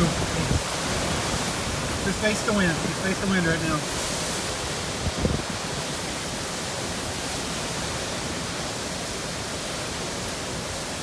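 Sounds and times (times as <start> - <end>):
strong wind and rain on car: 0.0 - 11.0.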